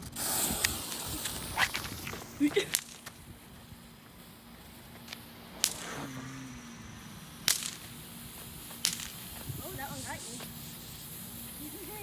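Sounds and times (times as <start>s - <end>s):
faint hiss: 0.0s - 12.0s
small fireworks cracking: 0.0s - 12.0s.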